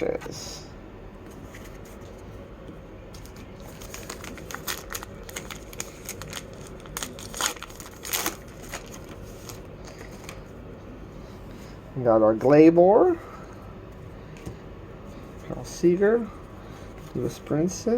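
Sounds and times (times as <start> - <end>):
wrapper being torn and crinkled: 3.2 - 10.4.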